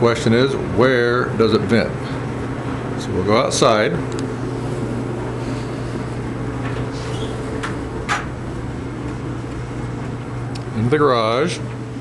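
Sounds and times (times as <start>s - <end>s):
clothes dryer humming: 0.0s - 12.0s
dryer door clicks: 6.7s - 8.4s.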